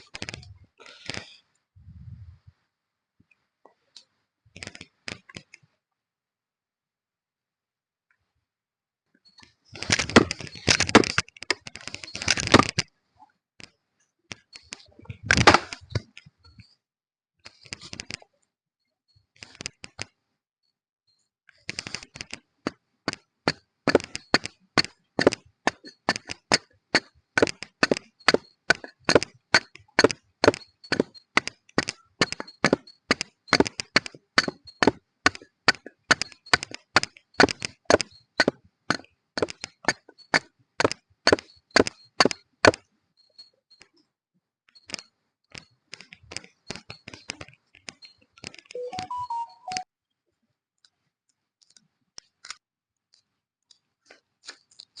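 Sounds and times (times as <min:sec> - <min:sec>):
sharp regular clicks: 0:21.5 - 0:43.0.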